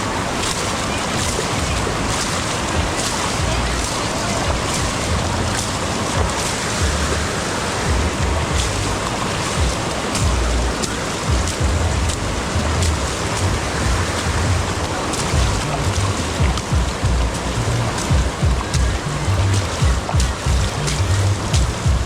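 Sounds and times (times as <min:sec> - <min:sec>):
steady rain hiss: 0:00.0 - 0:22.0
wind buffeting microphone: 0:00.0 - 0:22.0
sharp ticks: 0:15.2 - 0:22.0.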